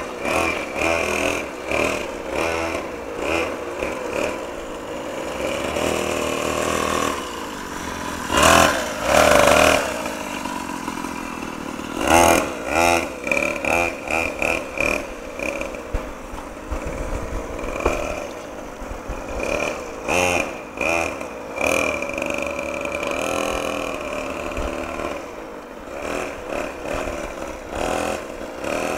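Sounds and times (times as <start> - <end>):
motocross bike engine revving: 0.0 - 28.9.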